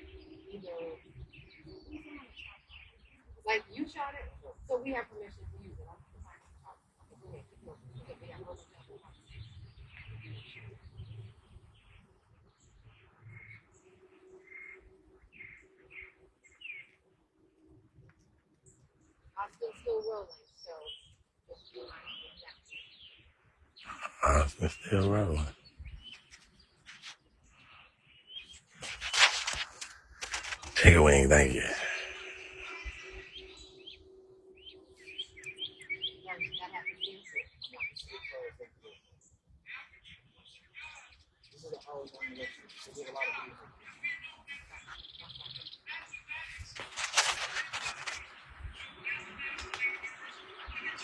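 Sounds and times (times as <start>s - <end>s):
small birds chirping: 0.0s - 5.0s, 18.2s - 51.0s
birds chirping: 23.8s - 38.4s.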